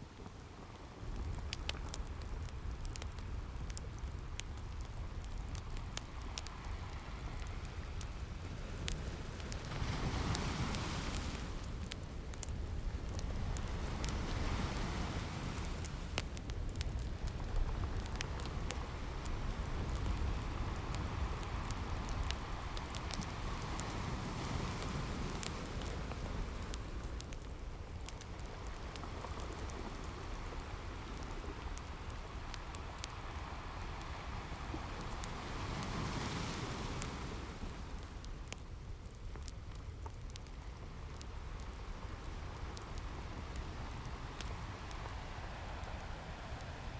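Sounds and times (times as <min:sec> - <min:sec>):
wood fire crackling: 0:00.0 - 0:46.9
ocean waves washing in: 0:09.4 - 0:11.8, 0:13.3 - 0:16.2.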